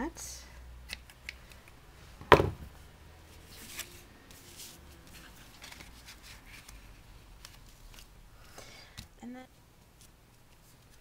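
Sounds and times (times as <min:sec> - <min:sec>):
ribbon and cardstock rustling: 0:03.4 - 0:08.2.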